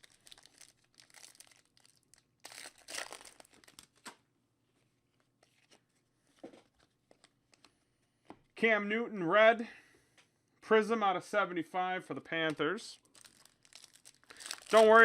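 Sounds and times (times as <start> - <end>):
wrapper tearing and crinkling: 0.0 - 4.1, 13.0 - 15.0.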